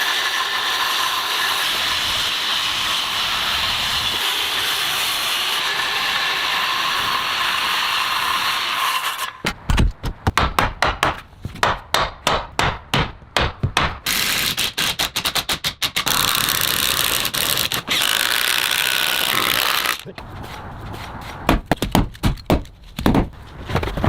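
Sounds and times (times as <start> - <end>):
power tool running: 16.1 - 20.0.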